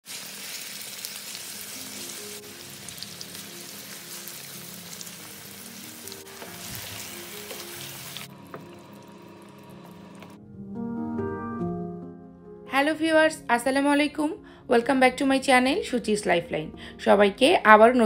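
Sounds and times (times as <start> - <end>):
chicken sizzling in hot oil: 0.0 - 10.3
soft background music: 1.2 - 18.0.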